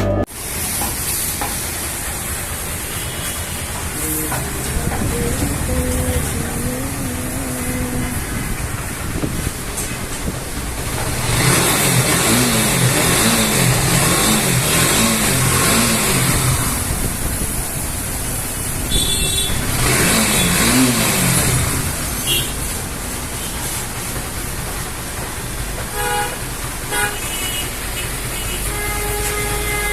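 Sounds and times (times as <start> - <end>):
street traffic noise: 0.0 - 29.9
motorcycle engine revving: 3.6 - 25.3
horn toots: 11.2 - 16.9, 18.8 - 22.7, 25.9 - 29.9.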